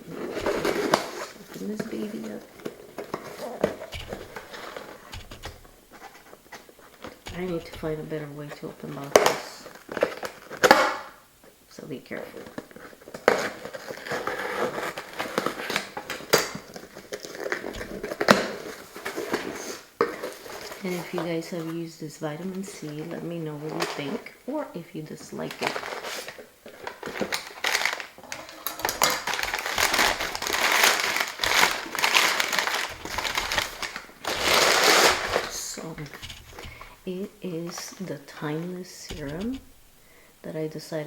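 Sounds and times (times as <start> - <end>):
sharp cardboard snaps: 0.2 - 1.3, 3.6 - 9.4, 17.4 - 18.7, 28.8 - 37.4, 39.1 - 40.1
cardboard packaging crinkling: 25.5 - 37.8.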